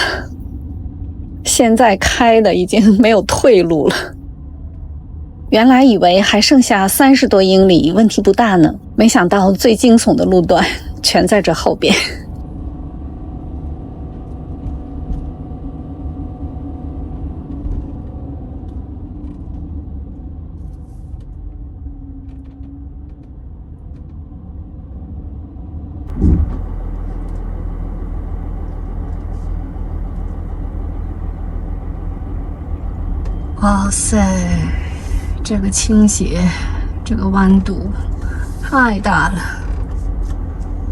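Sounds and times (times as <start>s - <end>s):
motorhome engine and road rumble: 0.0s - 0.3s, 1.5s - 4.1s, 5.6s - 12.3s, 26.1s - 40.9s.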